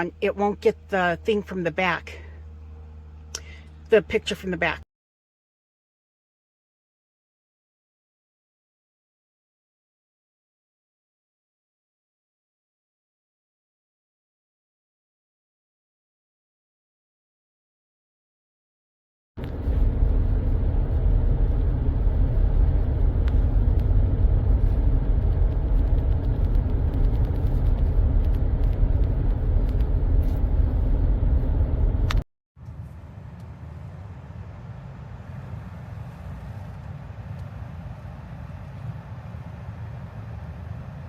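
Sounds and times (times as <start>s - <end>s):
moving car rumble: 0.0s - 4.8s, 19.4s - 41.0s
quieter low rumble: 19.4s - 41.0s.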